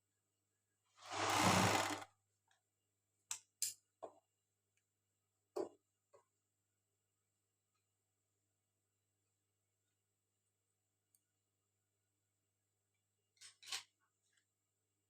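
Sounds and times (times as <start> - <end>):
short rush of noise: 1.0 - 2.0.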